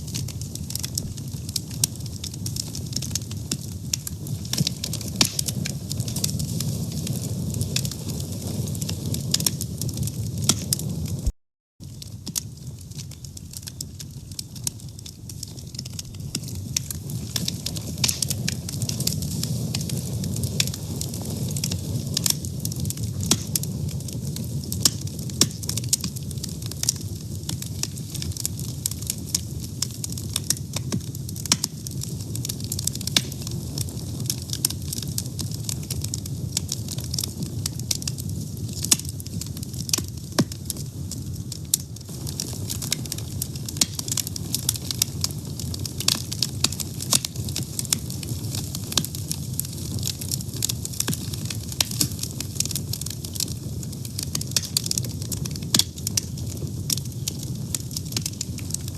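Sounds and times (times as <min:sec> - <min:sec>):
fire crackling and popping: 0:00.0 - 0:58.9.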